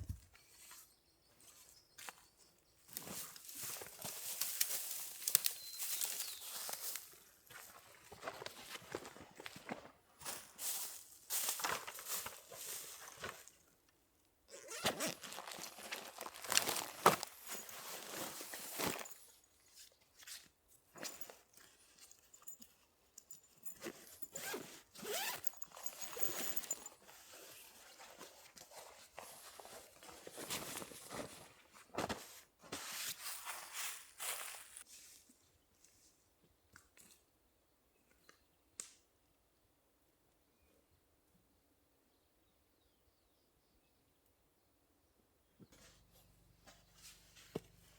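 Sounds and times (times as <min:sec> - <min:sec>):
rustling and handling noises: 0:00.0 - 0:13.8, 0:14.5 - 0:36.2, 0:45.7 - 0:47.9.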